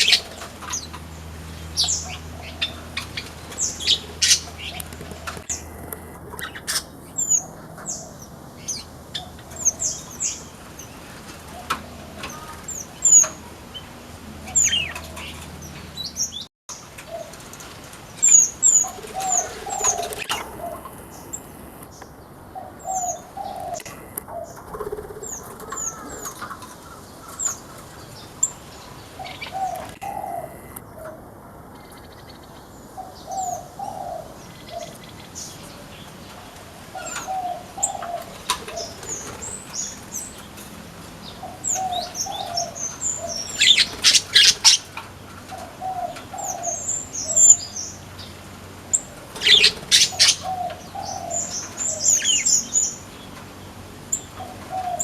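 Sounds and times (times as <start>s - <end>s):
wings fluttering: 0.0s - 7.0s, 16.9s - 21.9s, 23.6s - 28.4s, 36.3s - 46.2s, 49.0s - 50.4s
dove cooing: 0.0s - 16.0s, 18.2s - 21.8s, 22.5s - 31.4s, 33.0s - 40.4s, 41.2s - 47.8s, 48.9s - 52.5s, 54.3s - 55.0s
finches chirping: 0.0s - 16.4s, 18.2s - 26.4s, 27.2s - 30.9s, 41.2s - 44.9s, 45.6s - 53.4s.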